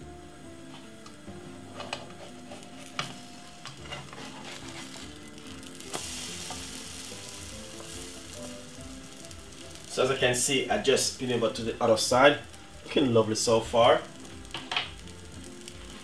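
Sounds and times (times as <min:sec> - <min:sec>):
bread frying in oil: 0:00.8 - 0:16.0.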